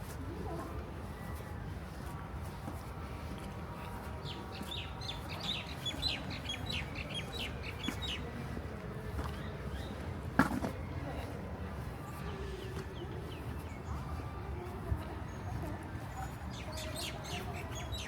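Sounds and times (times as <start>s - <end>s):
small birds chirping: 4.2s - 8.3s.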